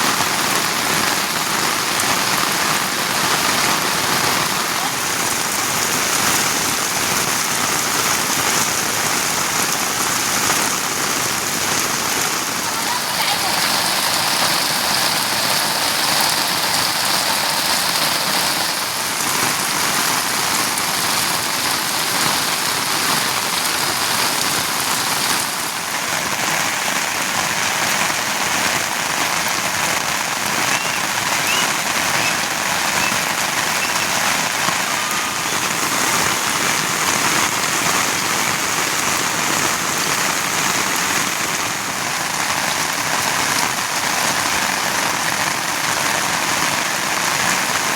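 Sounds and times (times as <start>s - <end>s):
heavy rain hissing: 0.0s - 47.9s.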